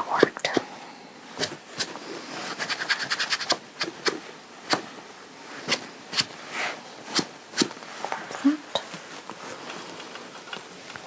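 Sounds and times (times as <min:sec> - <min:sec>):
fabric rustling: 0:01.3 - 0:11.0.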